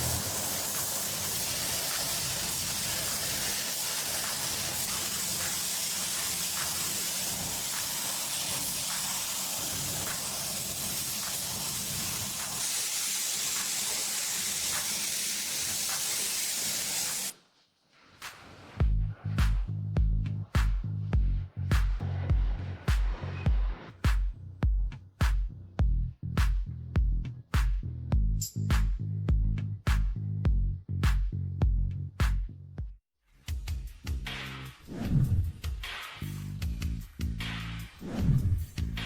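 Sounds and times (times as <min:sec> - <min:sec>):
steady spraying hiss: 0:00.0 - 0:17.4.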